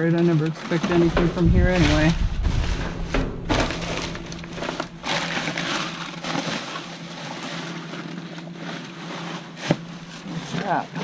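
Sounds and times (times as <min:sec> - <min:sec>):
debris crunching and rustling: 0:00.0 - 0:11.0
steady low hum: 0:00.6 - 0:08.1.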